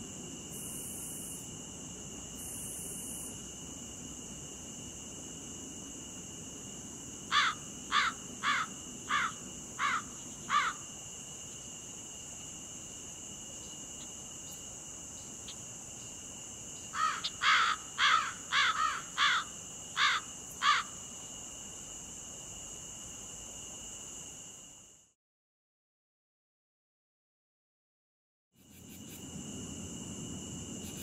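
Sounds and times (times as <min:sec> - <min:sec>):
high insect drone: 0:00.0 - 0:25.2, 0:28.6 - 0:31.0
bird calling: 0:07.3 - 0:10.8, 0:17.0 - 0:20.9.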